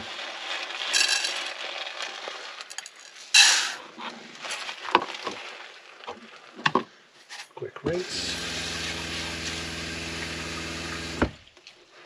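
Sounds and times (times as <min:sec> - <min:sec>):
rice poured into a pot: 0:00.0 - 0:06.6.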